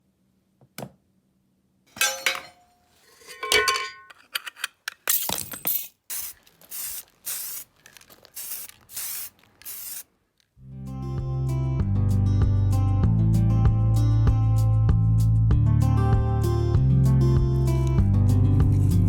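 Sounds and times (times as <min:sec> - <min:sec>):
small metal parts clinking: 0:02.0 - 0:10.0
short sharp hissing strokes: 0:06.1 - 0:10.1.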